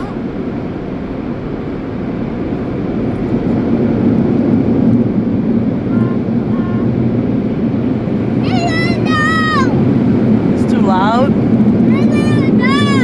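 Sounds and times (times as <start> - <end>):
car wash machinery rushing: 7.1 - 13.0.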